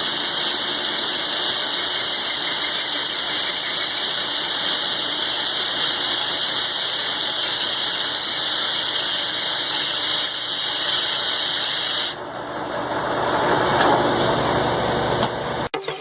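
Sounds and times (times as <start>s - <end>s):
milling machine cutting steel: 0.0s - 12.2s.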